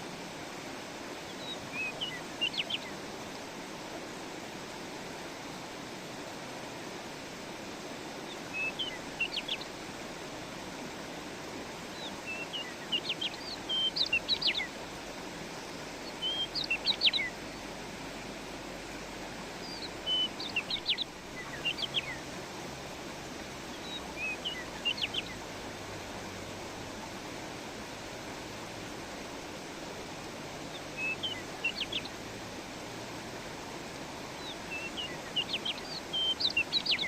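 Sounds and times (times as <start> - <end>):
stream flowing: 0.0 - 37.0
songbird chirping: 1.2 - 3.4, 8.3 - 9.8, 11.9 - 14.9, 15.5 - 17.7, 19.6 - 22.4, 23.6 - 25.5, 30.6 - 32.3, 33.8 - 37.0.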